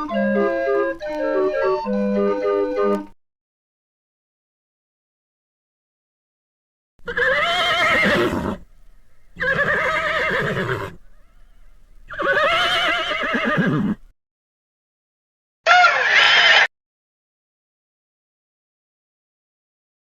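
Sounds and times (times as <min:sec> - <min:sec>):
horse whinnying: 0:07.0 - 0:08.7, 0:09.4 - 0:14.1, 0:15.7 - 0:16.7.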